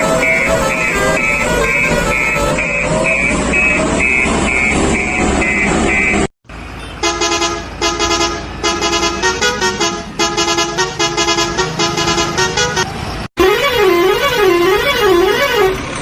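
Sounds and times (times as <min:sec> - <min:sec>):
vehicle horn honking: 0:00.0 - 0:06.2, 0:06.8 - 0:15.8.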